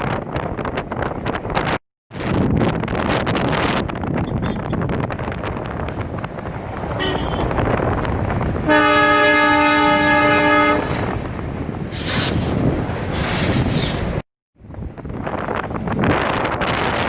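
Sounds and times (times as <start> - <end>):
moving train rushing noise: 2.7 - 14.3
train horn blast: 7.0 - 7.6, 8.7 - 11.3.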